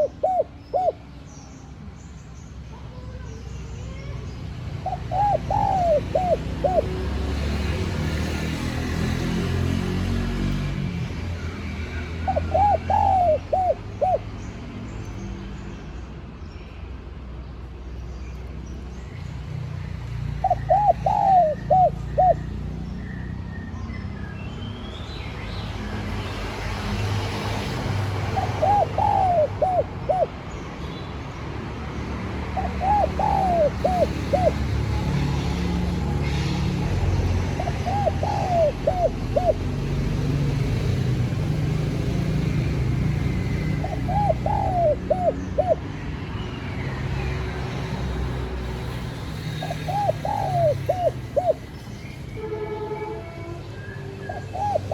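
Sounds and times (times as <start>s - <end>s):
dove cooing: 0.0s - 1.0s, 4.8s - 7.0s, 12.2s - 14.3s, 20.4s - 22.6s, 28.1s - 30.5s, 32.6s - 36.4s, 37.4s - 40.0s, 43.4s - 45.9s, 49.6s - 51.7s, 54.3s - 54.9s.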